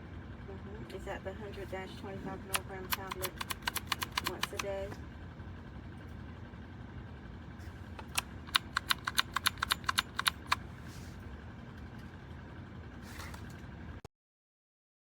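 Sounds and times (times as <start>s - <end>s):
steady low hum: 0.0s - 14.1s
mechanical keyboard key clicks: 2.5s - 4.7s, 8.0s - 10.6s.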